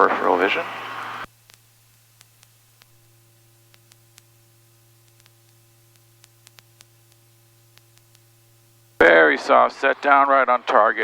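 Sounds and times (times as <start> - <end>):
faint electrical hum: 0.0 - 11.0
soft ticks: 3.7 - 4.3, 5.0 - 8.2.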